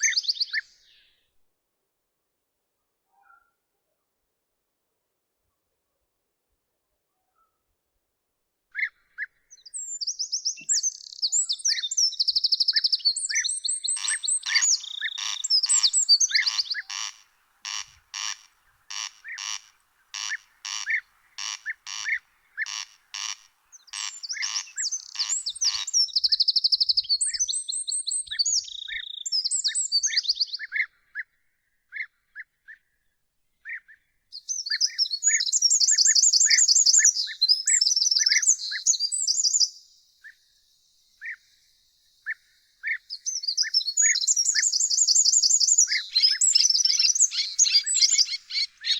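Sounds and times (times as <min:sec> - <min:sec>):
short bird chirps: 0:08.8 - 0:17.1, 0:34.3 - 0:48.9
birds trilling and warbling: 0:10.9 - 0:27.2, 0:43.0 - 0:48.9
harsh rasping bird call: 0:12.7 - 0:26.1, 0:43.6 - 0:48.9.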